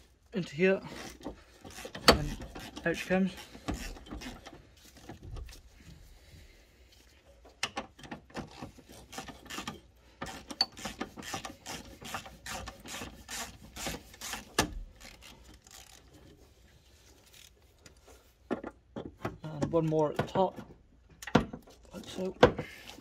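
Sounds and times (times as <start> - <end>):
hand ratchet clicking: 8.4 - 16.1.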